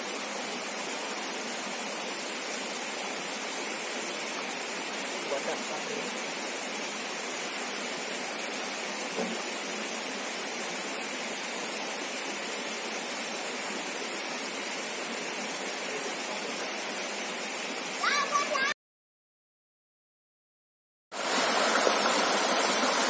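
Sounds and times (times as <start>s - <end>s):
flowing river water: 0.0s - 18.7s, 21.2s - 23.0s
faint brief knock: 9.1s - 9.5s.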